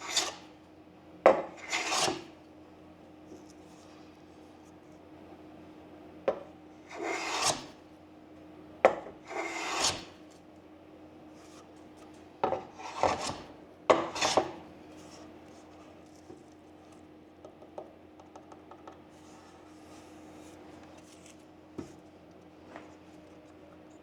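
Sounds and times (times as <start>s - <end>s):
hand tool scraping wood: 0.0s - 0.4s, 1.6s - 2.3s, 6.9s - 7.7s, 9.3s - 10.1s, 12.8s - 13.4s, 14.1s - 14.6s.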